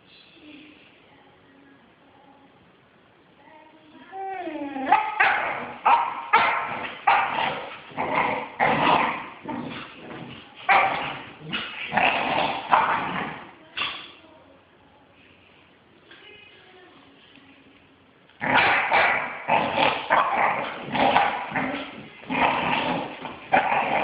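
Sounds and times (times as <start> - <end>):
puppy yapping and barking: 4.9 - 7.3.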